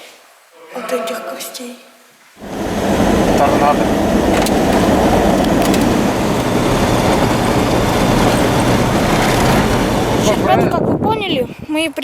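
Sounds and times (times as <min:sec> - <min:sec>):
vehicle driving on dirt road: 0:02.4 - 0:10.6.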